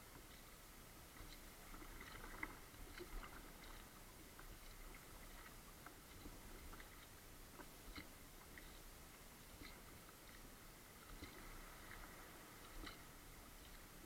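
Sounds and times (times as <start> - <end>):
paddle drips and splashes: 0.0 - 14.0
quiet hiss: 0.0 - 14.0.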